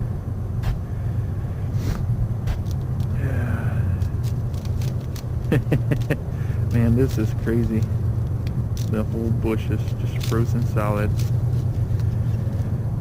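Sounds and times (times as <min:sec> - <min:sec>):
steady low rumble: 0:00.0 - 0:13.0
ice clicking and crackling: 0:02.6 - 0:12.2.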